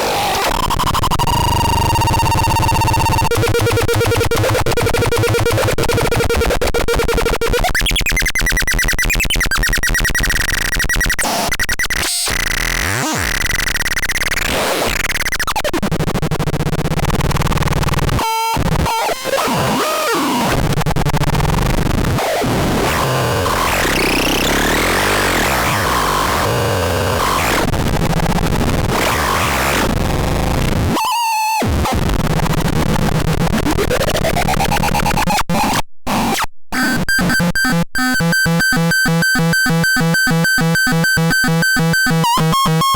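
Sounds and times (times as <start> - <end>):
harsh buzzy electronic tones: 0.0 - 15.6, 22.8 - 27.7, 31.6 - 42.9.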